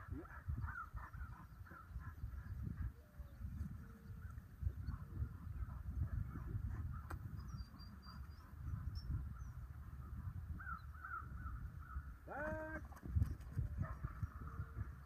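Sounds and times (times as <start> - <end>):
faint bird chirps: 7.0 - 12.0.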